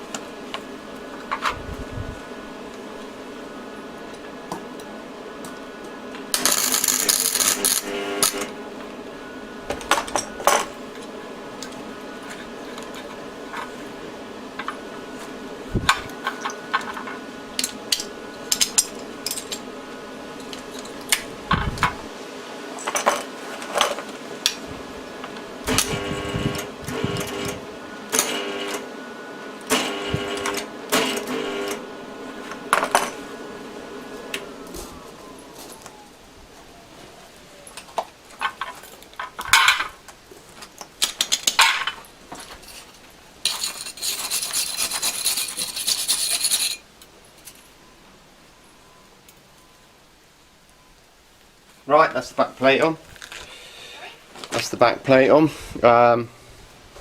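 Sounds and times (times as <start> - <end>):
steady background hum: 0.0 - 57.0
metal parts and tools clinking: 6.4 - 8.5, 17.6 - 19.6, 41.0 - 46.8.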